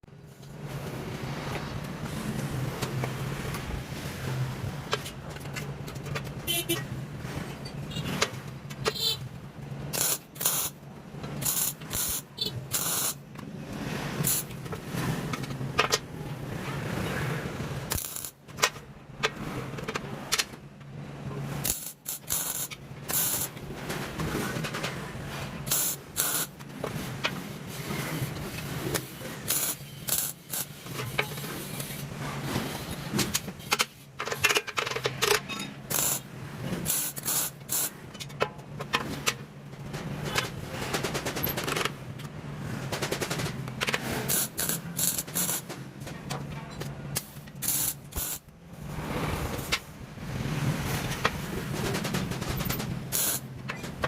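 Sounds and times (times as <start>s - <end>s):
hissing and crackling bursts: 9.9s - 10.8s, 11.4s - 13.3s, 14.2s - 14.6s, 17.8s - 18.4s, 21.6s - 23.6s, 25.7s - 26.6s, 28.1s - 32.9s, 35.9s - 38.0s, 44.2s - 45.7s, 47.2s - 48.5s, 53.0s - 53.5s.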